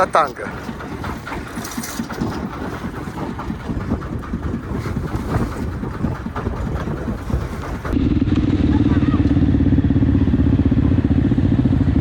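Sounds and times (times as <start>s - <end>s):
wind on microphone: 0.0s - 11.0s
vehicle engine rumble: 0.0s - 12.0s
low knocks: 0.4s - 8.0s.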